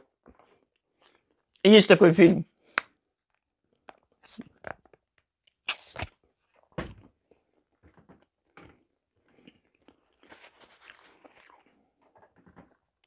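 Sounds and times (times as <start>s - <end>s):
person chewing food: 0.2s - 1.5s, 2.6s - 6.7s, 8.2s - 12.4s
mouth smacks: 5.6s - 6.1s.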